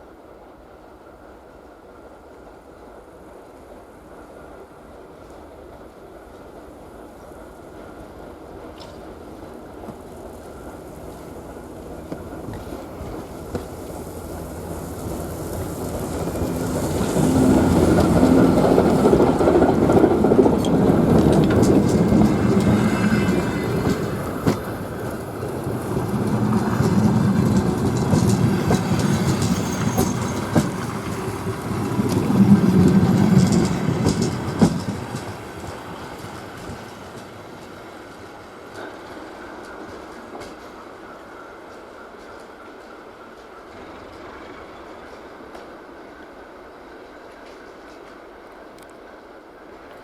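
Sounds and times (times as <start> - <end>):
diesel locomotive hum: 6.4 - 49.9
wheels clicking over rail joints: 9.8 - 40.8.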